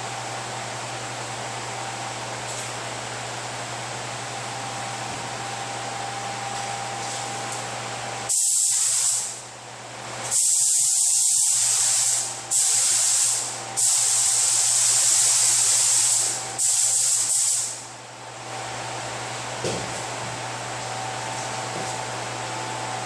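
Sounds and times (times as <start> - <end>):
spray gun hissing: 8.3 - 9.4, 10.3 - 17.8.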